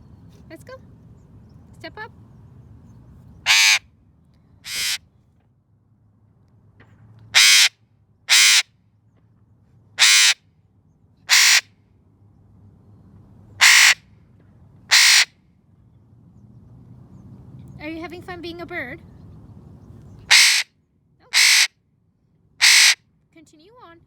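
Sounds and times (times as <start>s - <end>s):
parrot squawking: 3.5s - 3.8s, 4.7s - 5.0s, 7.4s - 7.7s, 8.3s - 8.6s, 10.0s - 10.4s, 11.3s - 11.6s, 13.6s - 14.0s, 14.9s - 15.3s, 20.3s - 20.6s, 21.3s - 21.7s, 22.6s - 23.0s.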